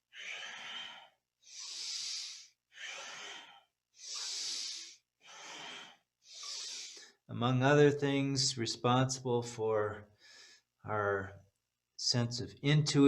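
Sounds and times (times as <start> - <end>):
person breathing through the nose: 0.0 - 7.2.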